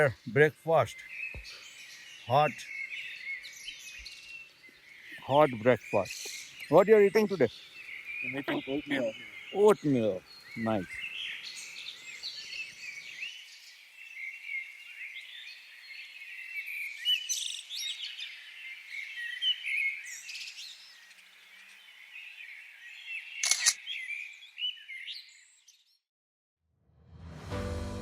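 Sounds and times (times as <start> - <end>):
songbirds chirping: 0.0 - 26.0
sharp click: 23.4 - 23.8.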